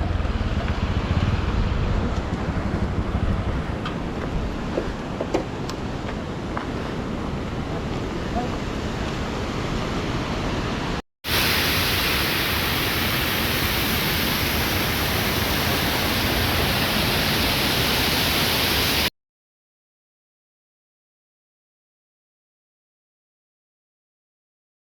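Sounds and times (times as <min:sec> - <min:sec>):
waterfall rushing roar: 0:06.4 - 0:19.1.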